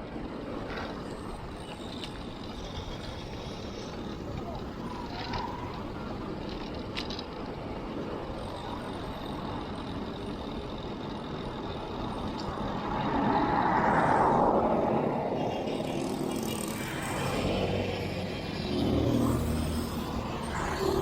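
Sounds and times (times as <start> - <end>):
bicycle road and wind noise: 0.0 - 21.0
motor vehicle passing: 11.6 - 21.0.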